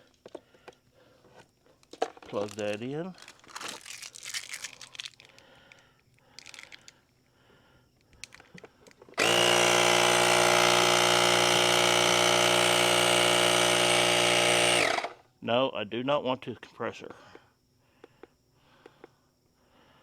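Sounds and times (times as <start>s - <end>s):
air compressor droning: 9.2s - 15.2s.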